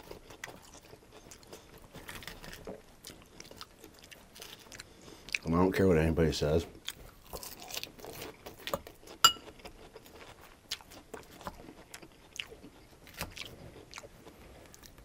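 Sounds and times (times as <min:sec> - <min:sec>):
crunchy lettuce chewing: 0:00.0 - 0:05.5, 0:06.7 - 0:15.0
metal fork clinking: 0:09.2 - 0:09.4.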